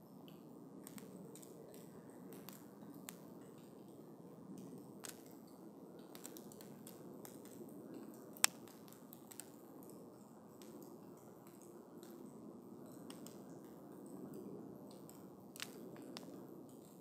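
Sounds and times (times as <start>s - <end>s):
campfire crackling and popping: 0.8s - 3.9s, 4.6s - 10.0s, 12.9s - 17.0s.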